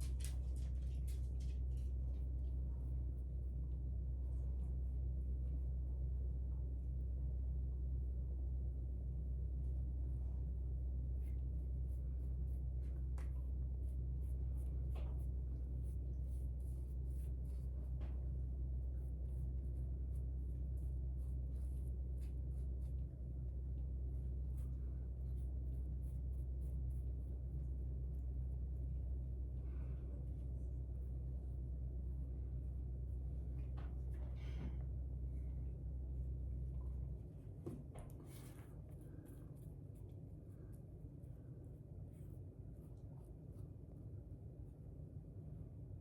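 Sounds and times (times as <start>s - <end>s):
steady low hum: 0.0s - 46.0s
paintbrush scratching on antler: 13.8s - 28.3s.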